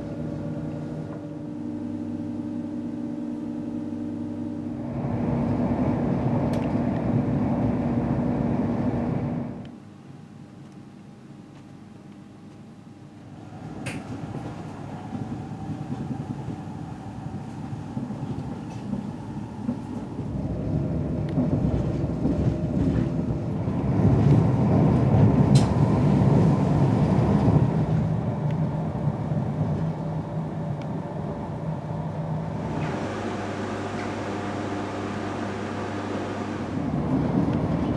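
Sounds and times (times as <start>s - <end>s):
train rolling on rails: 13.2s - 37.9s.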